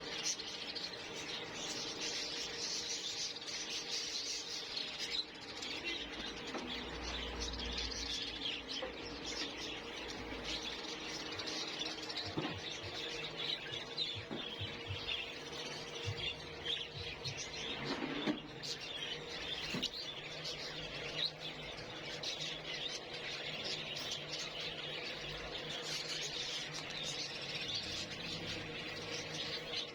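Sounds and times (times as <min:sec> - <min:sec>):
budgerigars chirping and chattering: 0:00.0 - 0:29.9
faint steady hum: 0:00.0 - 0:29.9.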